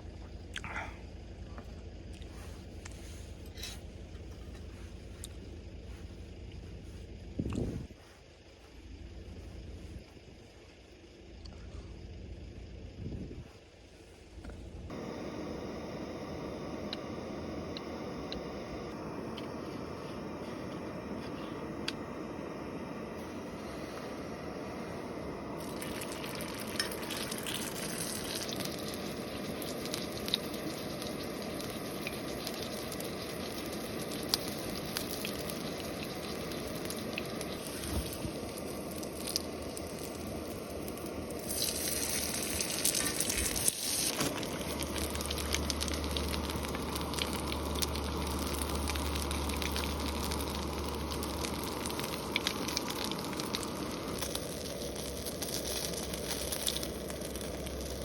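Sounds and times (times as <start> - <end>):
food sizzling in a pan: 25.6 - 58.0.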